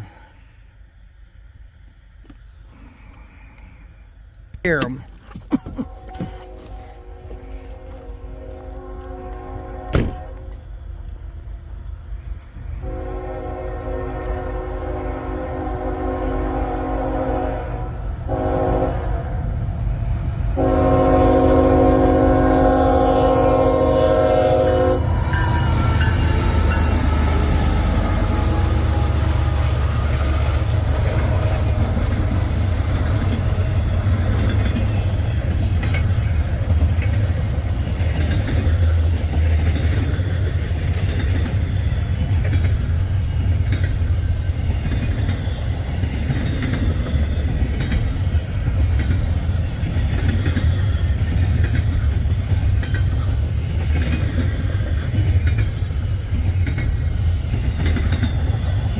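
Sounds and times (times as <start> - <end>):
freight train rumble: 0.0 - 58.9
train horn: 5.9 - 10.7, 12.8 - 19.5, 20.6 - 35.2
wheels clicking over rail joints: 24.6 - 58.9.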